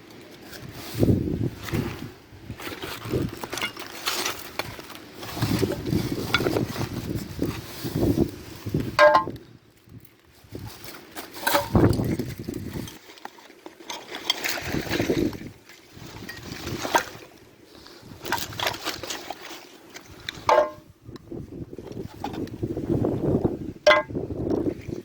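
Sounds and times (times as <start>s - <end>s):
rummaging through scrap: 0.0s - 9.4s, 10.5s - 15.4s, 16.1s - 20.9s.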